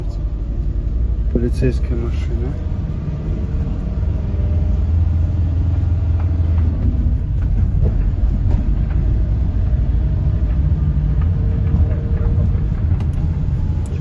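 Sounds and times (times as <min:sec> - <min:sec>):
car engine and road rumble: 0:00.0 - 0:14.0
light knocks and rattles: 0:06.0 - 0:14.0.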